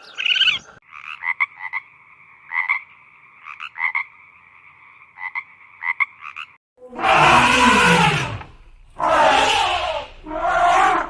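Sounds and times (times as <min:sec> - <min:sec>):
frogs croaking: 0:00.0 - 0:06.6.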